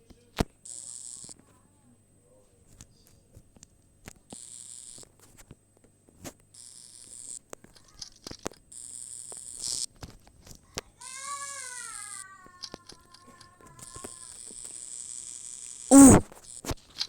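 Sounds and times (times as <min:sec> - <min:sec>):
short bursts of high hiss: 0:15.9 - 0:16.3.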